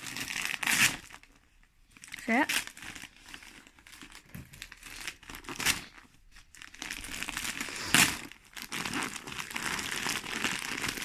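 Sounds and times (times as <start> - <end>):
wrapping paper crinkling: 0.0 - 11.0
paper ripping: 2.5 - 11.0.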